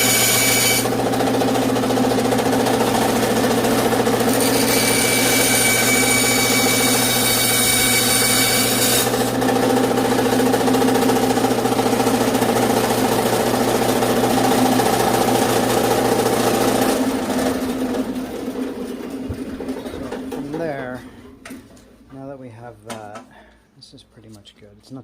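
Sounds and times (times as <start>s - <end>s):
saw blade whining through branch: 0.0s - 0.9s, 4.2s - 9.3s
power saw motor running: 0.0s - 20.7s.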